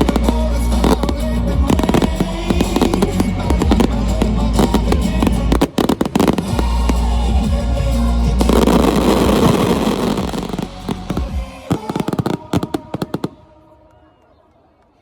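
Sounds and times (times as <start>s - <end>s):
low rumble: 0.0s - 11.7s
fireworks bangs and crackling: 0.0s - 13.7s
music: 0.0s - 14.2s.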